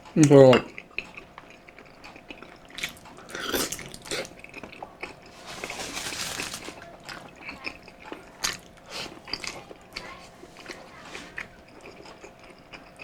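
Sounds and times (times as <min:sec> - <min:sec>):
person chewing with wet smacks: 0:00.0 - 0:05.4, 0:06.7 - 0:13.0.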